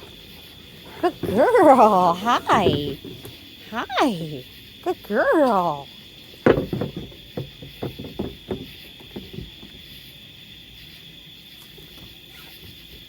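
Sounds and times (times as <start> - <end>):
dull knocks: 6.5 - 9.8.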